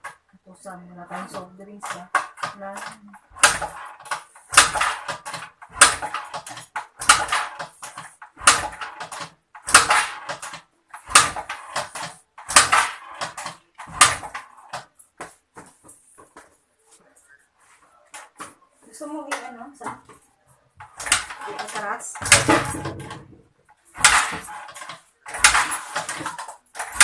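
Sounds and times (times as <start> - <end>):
scooter kick-start clattering: 20.9 - 27.0.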